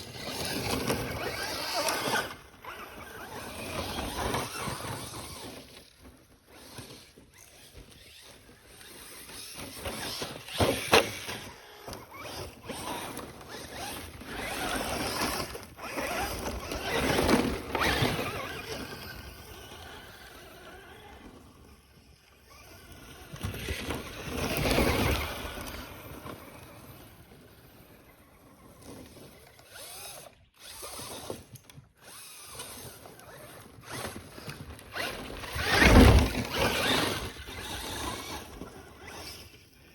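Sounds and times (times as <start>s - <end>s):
rc truck electric motor whining: 0.0s - 39.9s.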